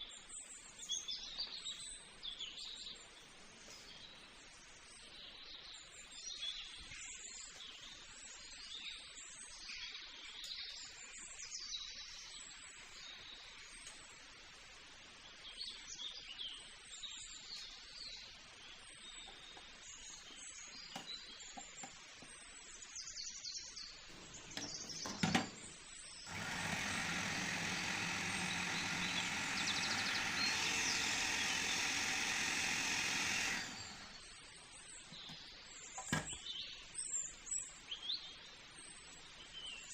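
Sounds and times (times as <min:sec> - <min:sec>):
birds chirping: 0:23.7 - 0:37.7
electric motor running: 0:26.2 - 0:34.4.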